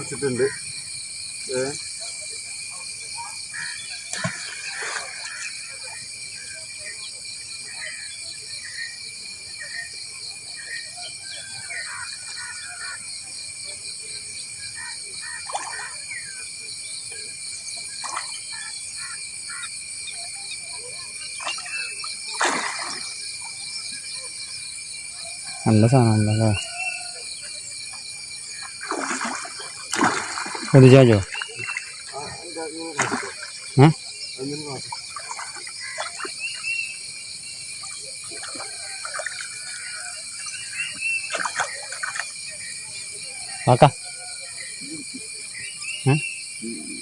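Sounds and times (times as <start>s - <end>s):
insects droning: 0.0s - 47.0s
small knocks and splashy ticks: 4.1s - 5.5s, 28.8s - 31.9s, 33.0s - 33.5s, 41.3s - 42.4s
birds chirping: 21.4s - 24.3s, 25.0s - 47.0s.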